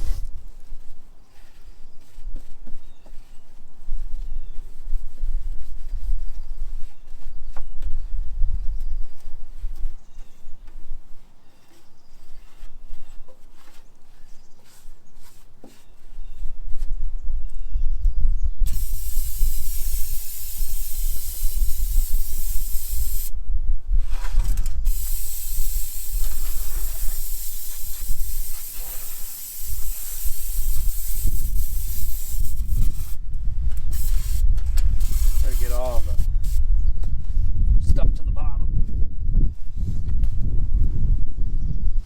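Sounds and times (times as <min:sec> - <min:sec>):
pressure washer spraying water: 0:18.7 - 0:23.4, 0:24.9 - 0:33.2.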